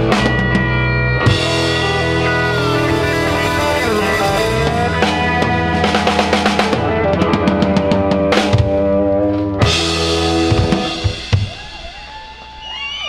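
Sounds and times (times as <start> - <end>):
held guitar chord: 0.0 - 10.8
gliding whoops: 11.5 - 13.0.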